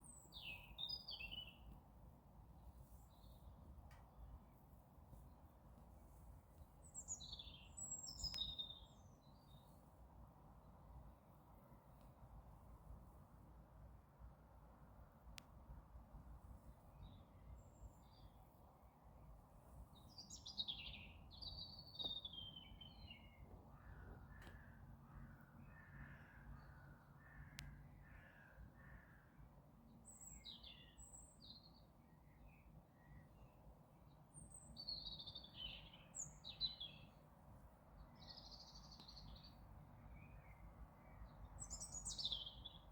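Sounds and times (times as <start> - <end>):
faint low outdoor rumble: 0.0 - 42.9
songbirds chirping: 0.0 - 42.9
small bird chirping: 6.8 - 9.7, 40.2 - 42.9.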